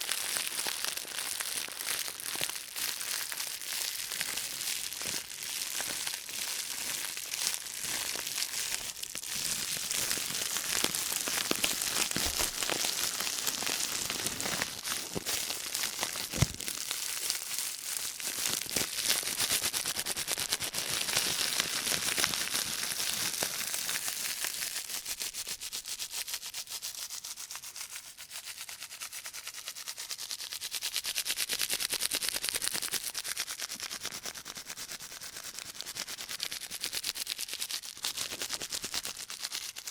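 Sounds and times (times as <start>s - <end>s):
plastic bag crinkling: 0.0s - 24.9s.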